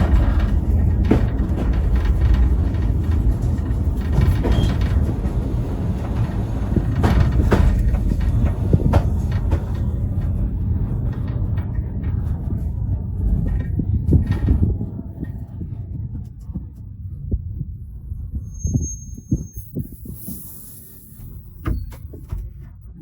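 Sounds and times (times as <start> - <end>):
wheels and couplings knocking: 0.0 - 17.7
railway carriage rumbling: 0.0 - 23.0.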